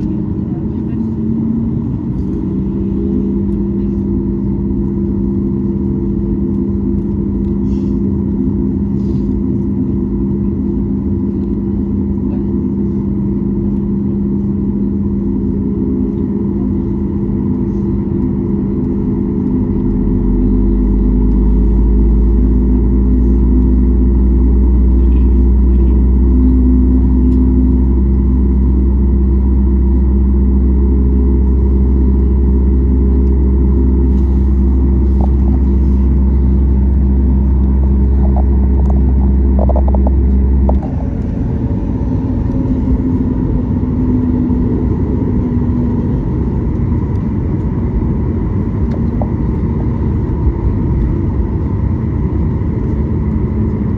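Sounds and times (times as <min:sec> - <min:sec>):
aircraft engine hum: 0:00.0 - 0:53.9
deep rumble: 0:00.0 - 0:53.9.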